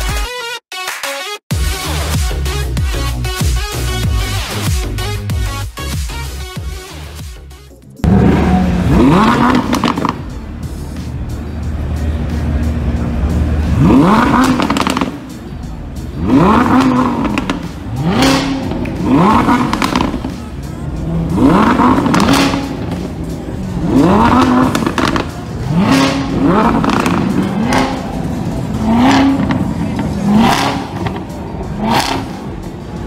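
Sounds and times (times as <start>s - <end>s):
car engine revving: 8.0s - 33.0s.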